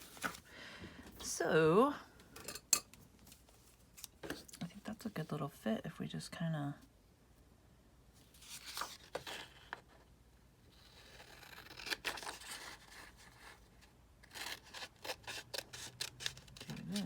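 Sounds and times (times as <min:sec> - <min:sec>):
paper rustling and scraping: 0:00.0 - 0:00.5, 0:08.2 - 0:10.0, 0:11.0 - 0:17.0
scissors snipping paper: 0:14.2 - 0:17.0.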